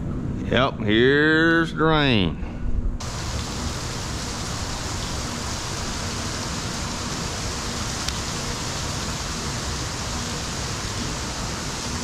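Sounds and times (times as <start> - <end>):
rain falling on water: 3.0 - 12.0.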